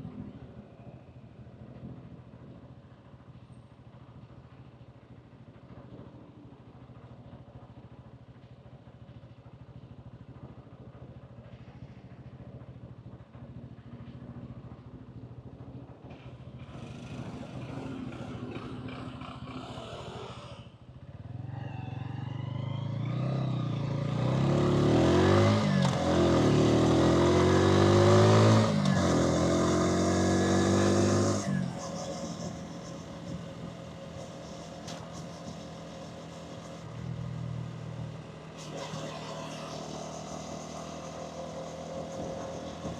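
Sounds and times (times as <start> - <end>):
motorcycle engine accelerating: 10.1 - 42.9.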